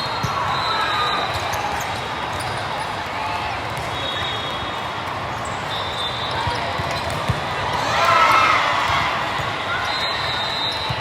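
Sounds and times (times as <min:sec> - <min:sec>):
balls bouncing on hardwood: 0:06.5 - 0:07.4.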